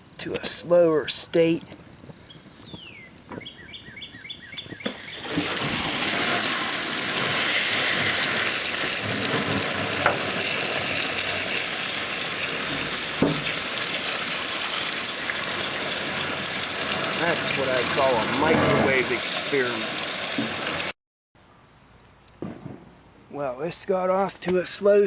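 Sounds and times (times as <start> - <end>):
loud hissing rush: 5.0 - 20.9.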